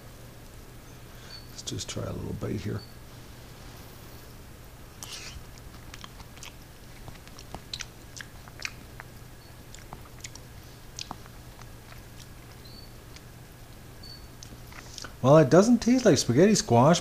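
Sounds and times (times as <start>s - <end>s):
steady low hum: 0.0s - 17.0s
person chewing food: 4.9s - 15.2s.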